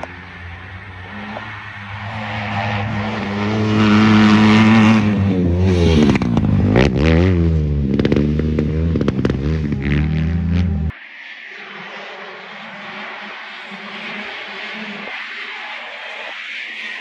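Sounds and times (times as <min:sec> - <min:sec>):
sharp cracks: 0:00.0 - 0:10.3
motocross engine revving: 0:00.0 - 0:10.9.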